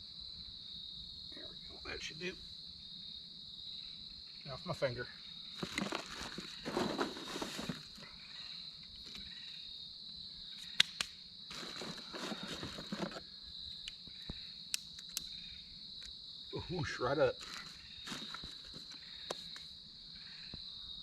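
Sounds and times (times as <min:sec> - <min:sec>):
crickets chirping: 0:00.0 - 0:21.0
rustling handling noise: 0:05.6 - 0:08.0, 0:11.5 - 0:13.2, 0:17.4 - 0:19.0
sharp clicks: 0:10.6 - 0:11.2, 0:14.7 - 0:15.3.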